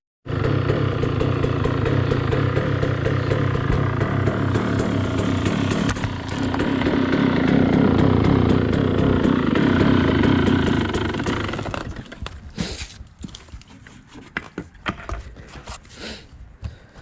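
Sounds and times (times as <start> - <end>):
dirt bike engine running: 0.3 - 12.4.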